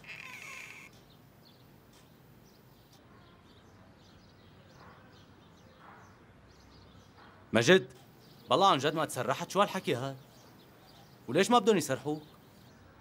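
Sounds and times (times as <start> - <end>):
faint bird chirps: 0.0 - 1.7.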